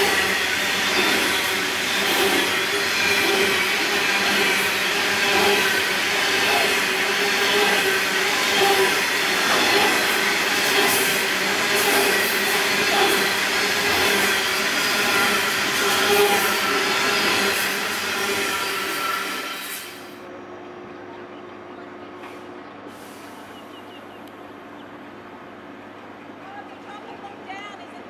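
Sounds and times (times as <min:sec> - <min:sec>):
wheels squealing: 0:00.0 - 0:20.0
steel wheels roaring on rail: 0:00.0 - 0:21.0.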